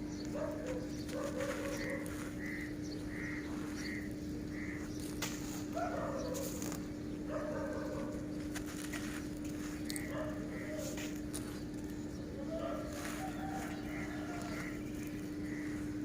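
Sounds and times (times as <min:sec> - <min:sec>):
short bird calls: 0:00.0 - 0:16.0
sharp crackles: 0:00.2 - 0:06.9, 0:07.9 - 0:15.9
crow-like caws: 0:00.7 - 0:06.3, 0:09.7 - 0:11.6, 0:12.4 - 0:16.0.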